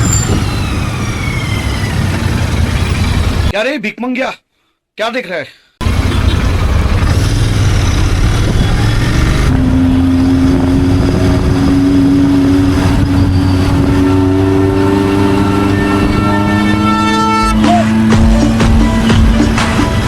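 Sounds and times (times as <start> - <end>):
motorcycle engine: 0.0 - 3.5, 5.8 - 20.0
rising pitched tone: 7.1 - 20.0.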